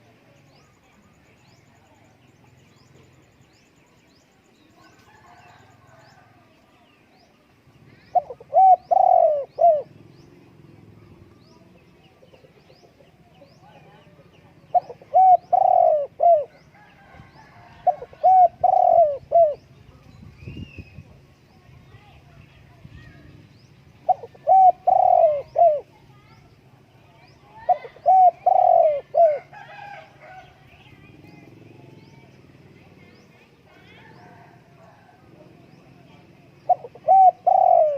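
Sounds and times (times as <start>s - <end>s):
small birds chirping: 0.0s - 37.9s
dove cooing: 7.9s - 19.8s, 24.0s - 26.3s, 27.5s - 30.7s, 33.8s - 37.9s.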